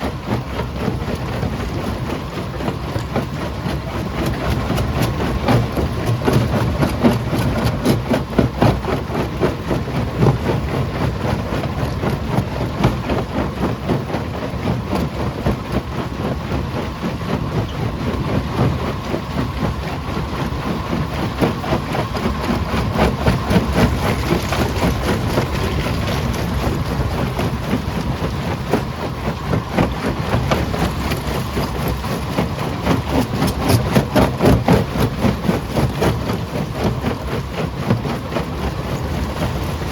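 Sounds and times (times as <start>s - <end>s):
jaw crusher running: 21.4s - 39.9s.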